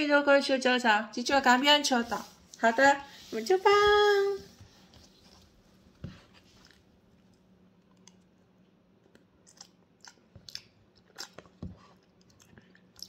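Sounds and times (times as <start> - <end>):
faint chewing: 6.4 - 13.0.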